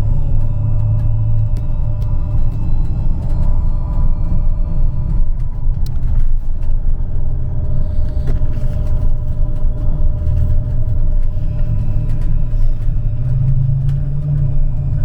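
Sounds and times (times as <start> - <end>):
faint steady whine: 0.0 - 15.0
trolleybus low rumble: 0.0 - 15.0.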